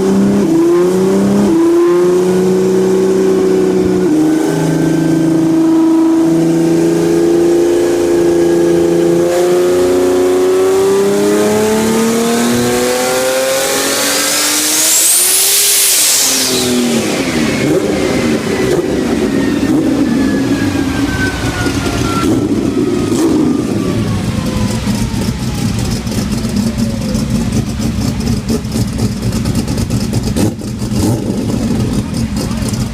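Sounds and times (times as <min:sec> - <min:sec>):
engine revving on dyno: 0:00.0 - 0:32.7
high turbo whine: 0:00.0 - 0:32.9
whine falling in pitch: 0:14.7 - 0:27.3.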